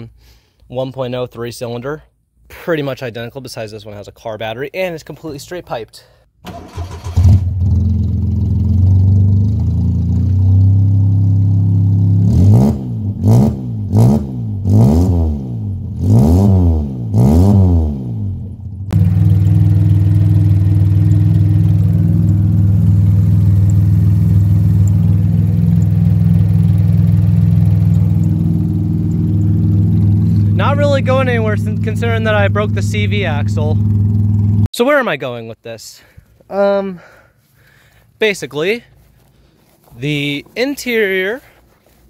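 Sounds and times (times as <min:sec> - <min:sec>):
car engine idling and revving: 0:06.5 - 0:34.7.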